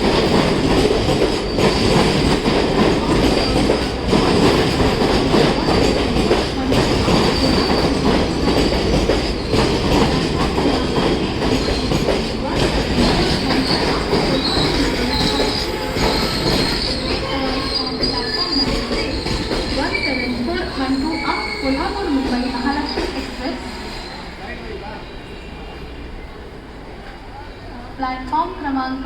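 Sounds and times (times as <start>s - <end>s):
train wheels rumbling: 0.0s - 29.0s
high-pitched wheel squeals: 13.2s - 26.3s.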